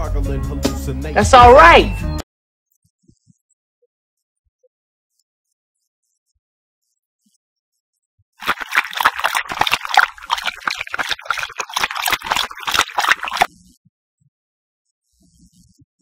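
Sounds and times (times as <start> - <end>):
beer glugging in can: 8.4 - 13.5.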